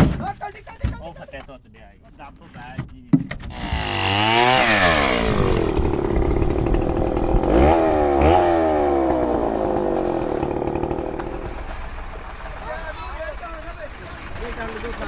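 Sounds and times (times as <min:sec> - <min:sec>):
engine revving: 0:03.5 - 0:13.0.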